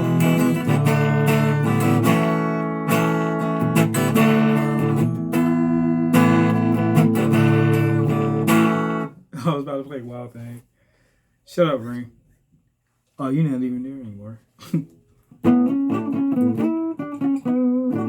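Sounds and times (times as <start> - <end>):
guitar strumming chords: 0.0 - 9.2, 15.3 - 18.0.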